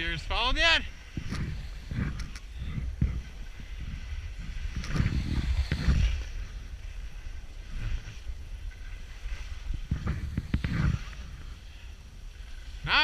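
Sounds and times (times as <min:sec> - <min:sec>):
skis scraping over snow: 0:00.0 - 0:13.0
wind buffeting microphone: 0:00.0 - 0:13.0.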